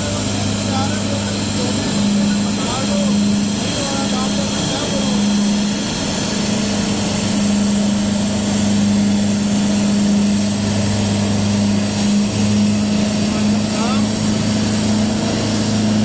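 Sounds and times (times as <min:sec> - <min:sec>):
pushback machinery engine hum: 0:00.0 - 0:16.0.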